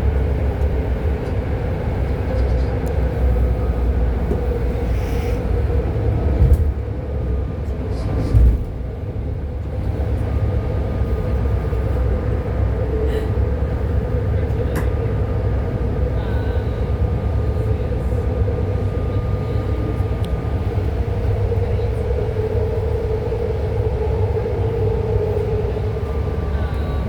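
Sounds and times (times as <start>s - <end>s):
train car rumbling: 0.0s - 27.0s
constant whine: 5.6s - 27.0s.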